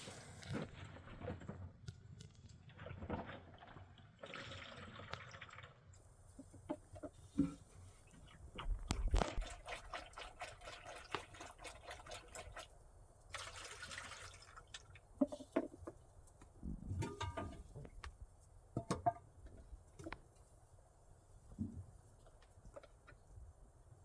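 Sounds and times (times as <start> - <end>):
water dripping into container: 2.2 - 7.1, 8.2 - 12.7, 13.3 - 15.1.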